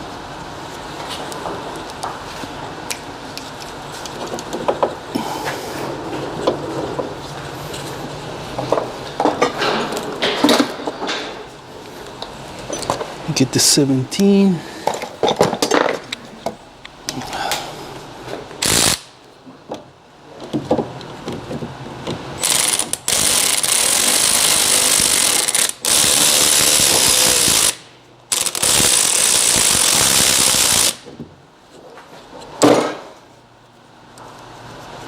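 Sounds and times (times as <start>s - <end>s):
tools and metal parts clanking: 8.6s - 11.4s
power wrench whining: 18.6s - 19.1s, 22.4s - 31.1s.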